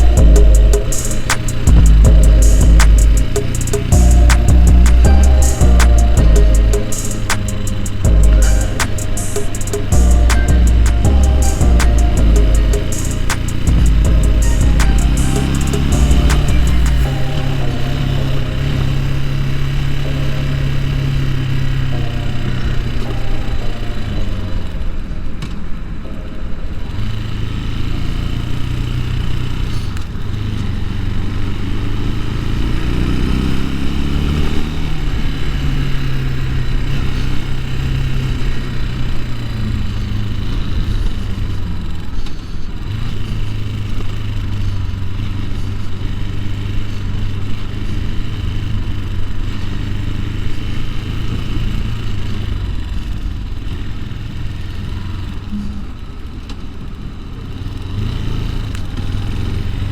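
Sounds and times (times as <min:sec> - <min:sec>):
motorcycle engine revving: 0:26.9 - 0:59.9.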